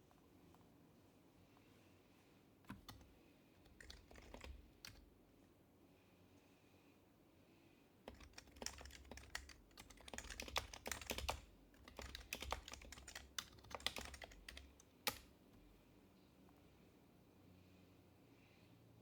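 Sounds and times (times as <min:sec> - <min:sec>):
soft keyboard keystrokes: 0:02.6 - 0:05.1, 0:08.1 - 0:15.7.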